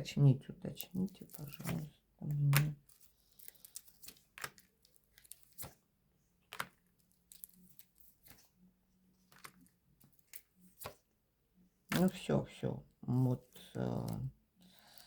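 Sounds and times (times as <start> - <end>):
cards tapping and sliding: 1.2 - 5.8, 6.5 - 8.5, 9.3 - 11.0.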